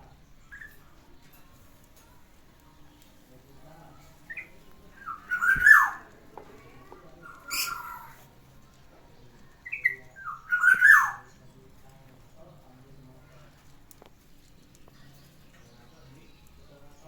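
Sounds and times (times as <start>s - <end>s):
bulbul calling: 4.2s - 6.1s, 7.2s - 8.2s, 9.6s - 11.3s.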